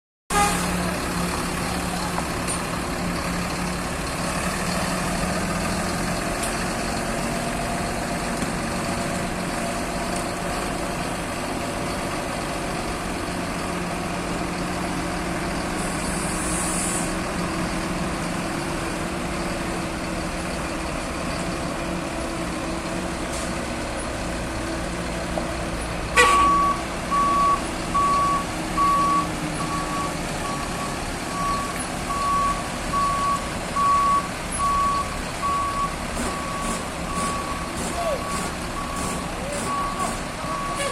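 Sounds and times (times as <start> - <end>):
diesel engine running: 0.3 - 40.9
air hiss: 16.2 - 17.2
reversing alarm beeping: 26.2 - 40.9.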